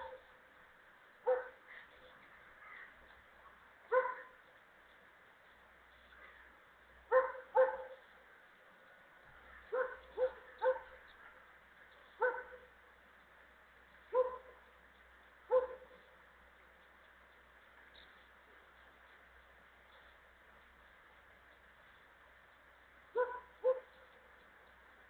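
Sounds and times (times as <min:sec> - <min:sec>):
dog barking: 0:00.0 - 0:00.2, 0:01.2 - 0:01.7, 0:03.9 - 0:04.4, 0:07.1 - 0:08.0, 0:09.7 - 0:11.4, 0:12.2 - 0:12.7, 0:14.1 - 0:14.6, 0:15.5 - 0:16.0, 0:23.1 - 0:24.1.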